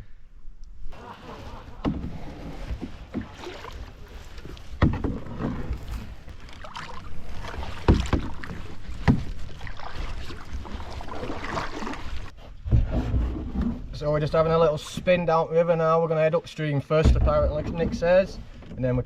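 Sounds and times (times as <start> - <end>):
paddle strokes in water: 0.9 - 13.9.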